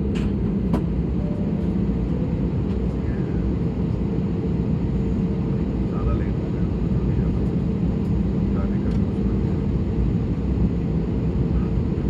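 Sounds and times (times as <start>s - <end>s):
aircraft engines rumbling in cabin: 0.0s - 12.0s.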